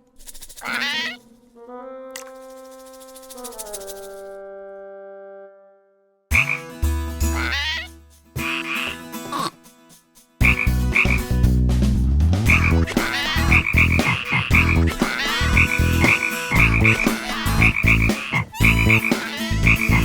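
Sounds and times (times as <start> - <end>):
rapid croaking calls: 0.2 - 1.3, 2.2 - 4.3, 6.3 - 9.5, 10.4 - 11.3, 12.5 - 20.0
heavy low backing music: 10.4 - 20.0.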